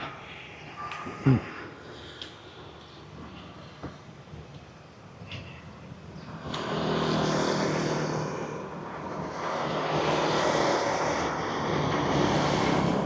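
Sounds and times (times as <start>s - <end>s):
passing vehicle engines: 5.4s - 13.0s.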